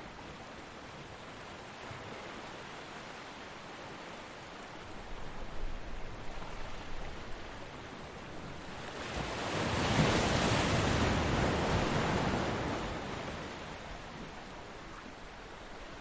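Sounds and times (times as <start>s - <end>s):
ocean waves breaking: 5.8s - 15.4s.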